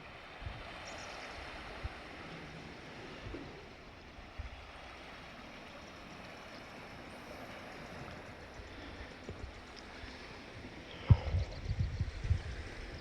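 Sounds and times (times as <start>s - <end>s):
sea surf hissing: 0.0s - 11.4s.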